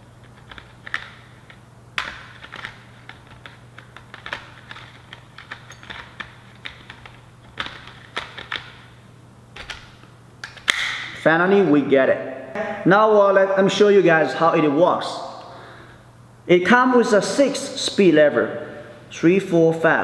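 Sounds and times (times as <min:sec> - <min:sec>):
steady low hum: 0:00.0 - 0:20.0
battery pack snapping into handle: 0:10.4 - 0:11.1.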